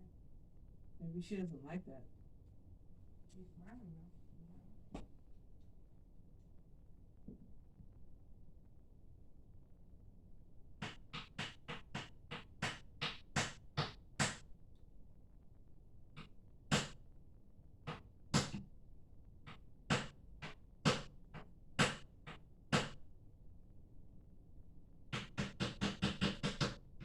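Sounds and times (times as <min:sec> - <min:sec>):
sharp knocks on hard surface: 0:10.8 - 0:14.4, 0:16.7 - 0:17.0, 0:17.9 - 0:18.7, 0:19.5 - 0:23.0, 0:25.1 - 0:26.8.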